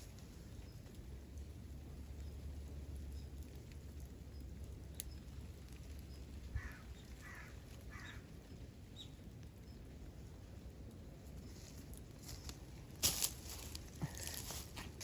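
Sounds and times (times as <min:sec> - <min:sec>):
crow cawing: 0:06.6 - 0:08.2.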